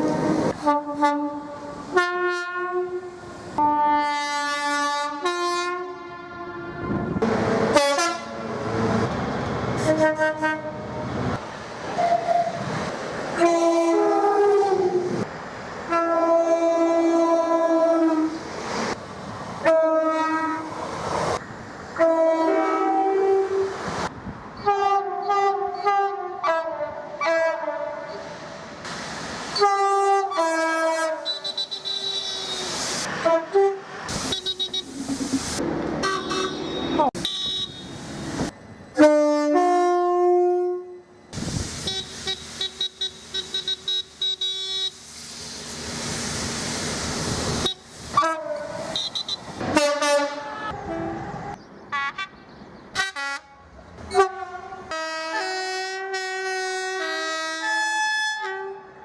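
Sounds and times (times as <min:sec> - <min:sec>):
train horn blasts: 0:00.0 - 0:08.6, 0:09.8 - 0:11.1, 0:13.4 - 0:15.0, 0:15.9 - 0:18.4, 0:19.6 - 0:20.7, 0:22.0 - 0:23.7, 0:24.6 - 0:28.2, 0:29.6 - 0:34.9, 0:36.0 - 0:38.0, 0:39.0 - 0:41.0, 0:47.7 - 0:52.3, 0:53.0 - 0:59.0
rail running noise: 0:00.0 - 0:59.0.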